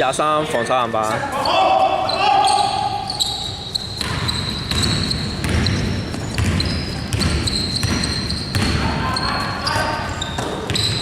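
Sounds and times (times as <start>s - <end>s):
basketball dribbled on hardwood: 4.0s - 8.9s.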